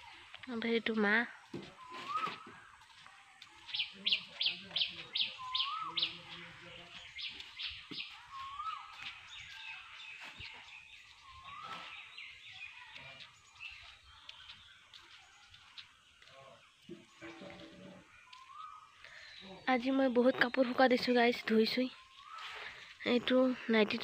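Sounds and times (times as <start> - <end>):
bird short rising whistle: 1.8 - 2.4
bird sharp chirps: 3.6 - 19.7.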